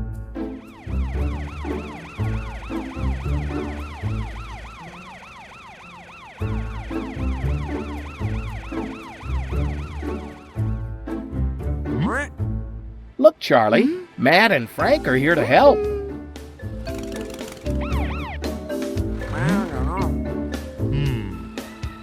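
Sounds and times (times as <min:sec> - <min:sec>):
siren yelping: 0:00.6 - 0:10.6, 0:17.7 - 0:18.5, 0:19.2 - 0:20.1.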